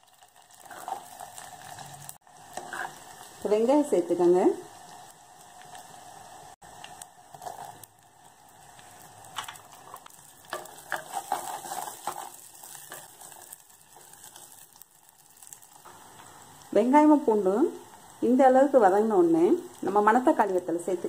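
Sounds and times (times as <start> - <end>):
garlic and shallots sizzling in oil: 0.0 - 21.0
metal spoon scraping pot: 2.6 - 3.0, 10.5 - 13.4.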